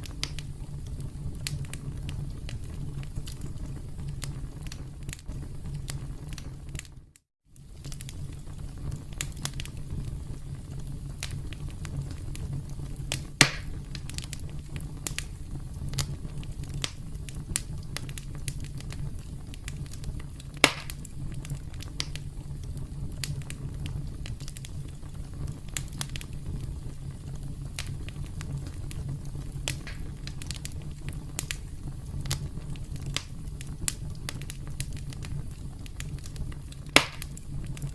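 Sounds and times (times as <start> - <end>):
campfire flames rumbling: 0.0 - 37.9
fire crackling: 0.0 - 37.9
loud fire pops: 0.0 - 37.9.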